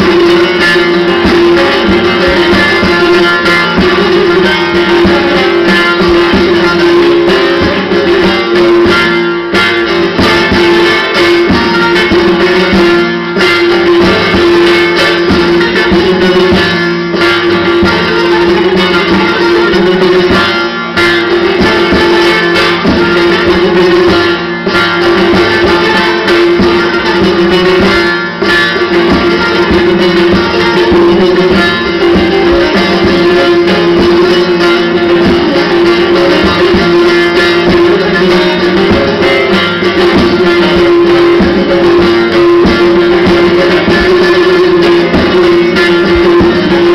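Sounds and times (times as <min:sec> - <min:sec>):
plucked string music with drone: 0:00.0 - 0:46.9.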